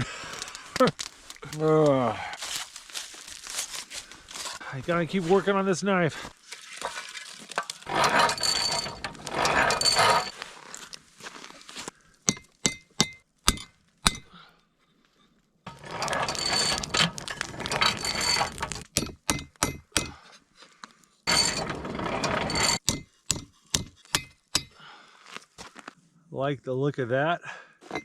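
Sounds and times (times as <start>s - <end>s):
rough scraping: 2.4s - 11.9s, 15.7s - 20.2s, 21.2s - 22.8s.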